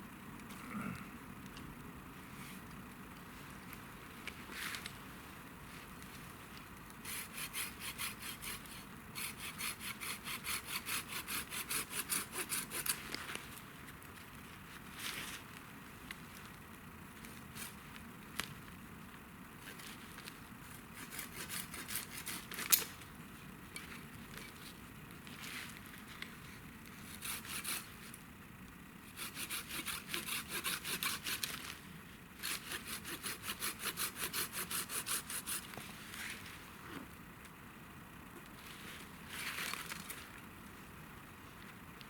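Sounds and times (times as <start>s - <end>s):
hand saw cutting wood: 7.1s - 13.0s, 21.0s - 22.8s, 27.1s - 27.9s, 29.2s - 31.6s, 32.4s - 35.7s.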